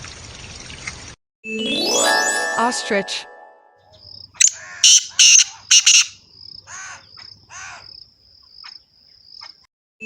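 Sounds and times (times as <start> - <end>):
bird calls: 4.4 - 7.9.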